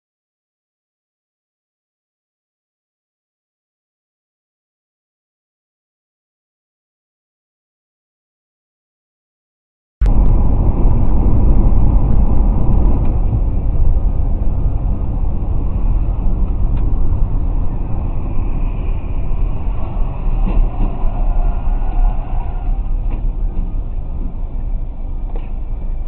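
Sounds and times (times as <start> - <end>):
moving vehicle rumble: 10.0 - 26.0.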